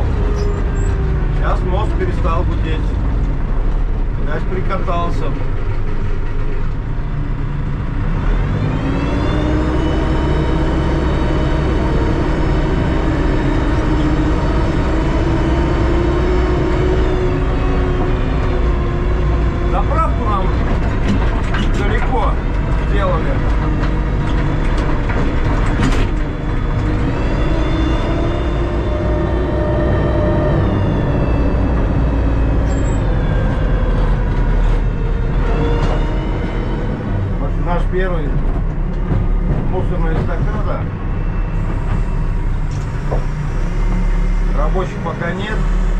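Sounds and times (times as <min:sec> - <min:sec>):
backhoe diesel engine running: 0:00.0 - 0:45.9
rising whine: 0:08.6 - 0:21.3, 0:22.4 - 0:45.9.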